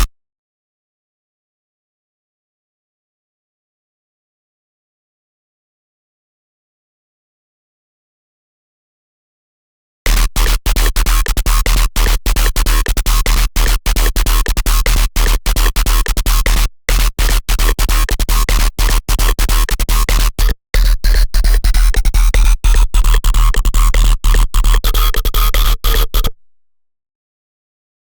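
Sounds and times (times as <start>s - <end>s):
harsh noisy synthesizer: 10.1s - 26.3s
deep sub-bass: 16.4s - 26.3s.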